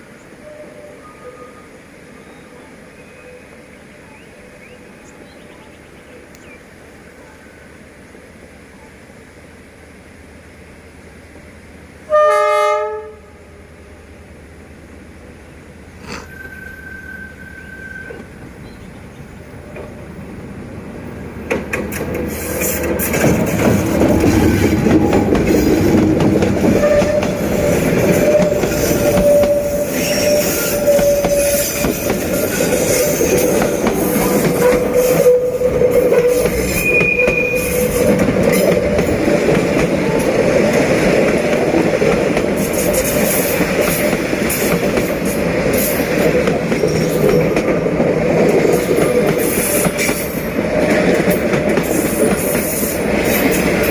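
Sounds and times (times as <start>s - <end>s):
train wheel squeal: 0.3s - 3.6s, 16.1s - 18.5s, 22.1s - 25.8s, 26.6s - 39.1s, 49.3s - 50.6s
train wheels rolling on rails: 13.6s - 53.9s.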